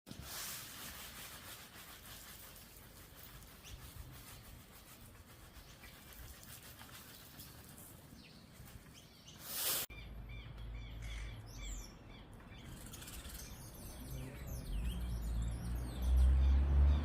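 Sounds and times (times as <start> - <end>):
outdoor background hiss: 0.1 - 15.0
faint bird chirps: 9.0 - 16.6.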